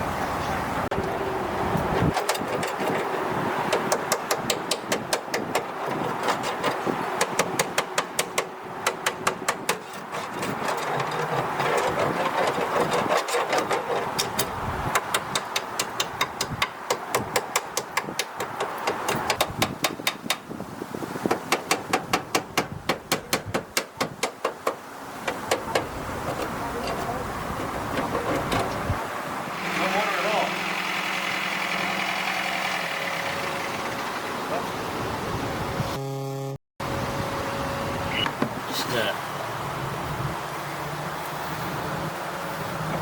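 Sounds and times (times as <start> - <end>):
engine ticking clatter: 3.7 - 20.5, 29.6 - 34.2.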